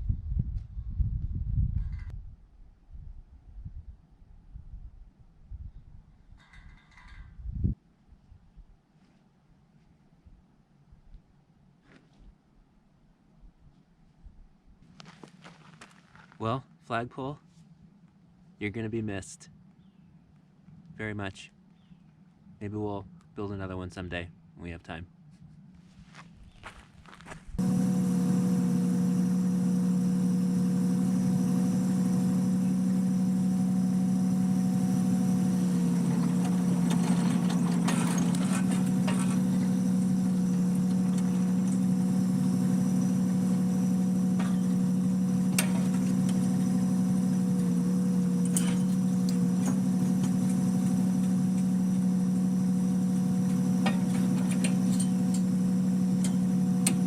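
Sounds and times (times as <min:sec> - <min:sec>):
engine idling: 0:27.6 - 0:57.0.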